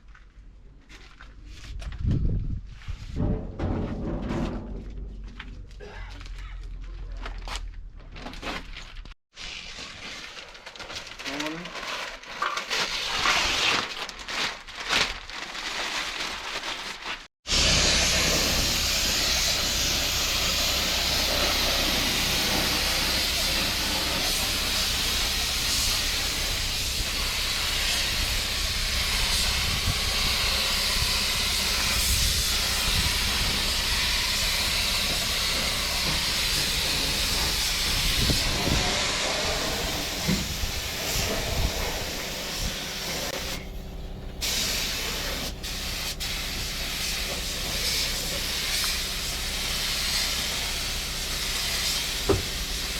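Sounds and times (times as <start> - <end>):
paint spray gun air hiss: 17.5 - 52.9.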